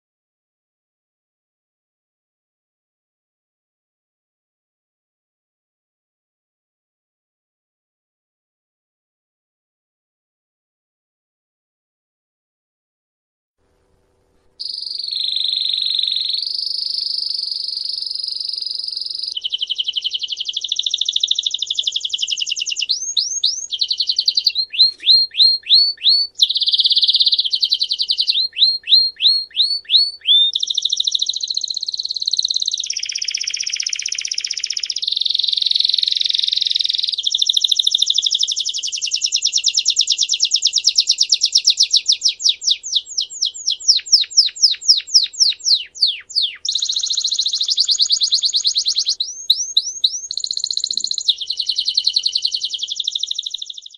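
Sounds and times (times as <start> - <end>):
songbird singing trills: 14.6 - 53.9.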